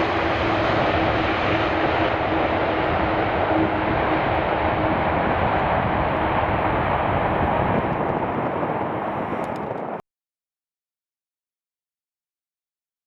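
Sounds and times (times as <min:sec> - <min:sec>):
jet engines passing: 0:00.0 - 0:10.0.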